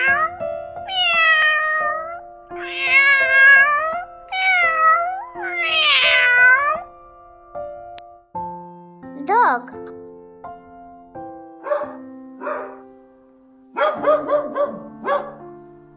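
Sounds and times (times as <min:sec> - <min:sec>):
cat meowing: 0:00.0 - 0:06.9.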